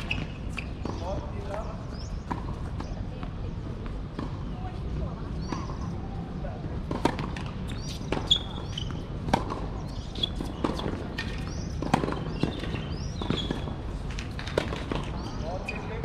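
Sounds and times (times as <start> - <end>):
racket striking tennis ball: 6.9 - 13.7.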